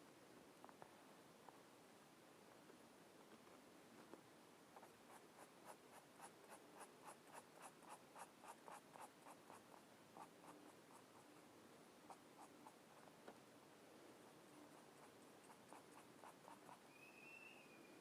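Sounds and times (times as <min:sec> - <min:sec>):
colouring strokes on paper: 0:04.8 - 0:13.2, 0:14.3 - 0:16.8.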